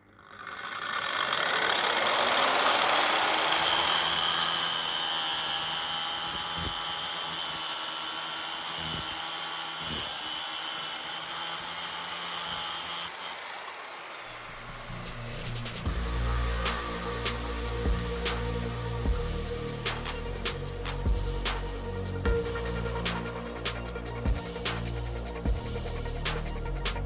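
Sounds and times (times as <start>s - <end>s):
power grinder grinding steel: 0.1s - 15.5s.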